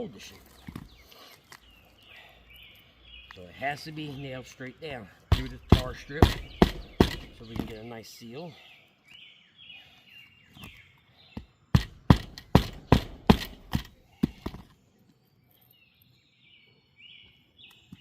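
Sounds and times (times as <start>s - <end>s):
birds chirping: 0.0s - 18.0s
hammer striking nails: 5.3s - 7.8s, 11.8s - 14.6s.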